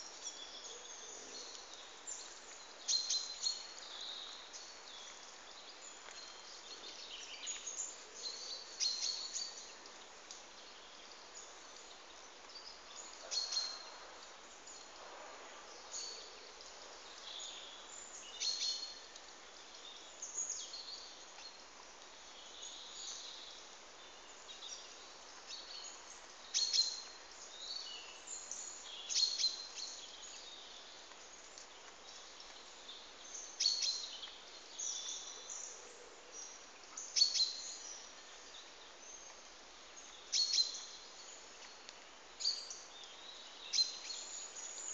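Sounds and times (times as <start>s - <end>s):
steady faint hiss: 0.0s - 44.9s
small birds chirping: 15.6s - 44.9s.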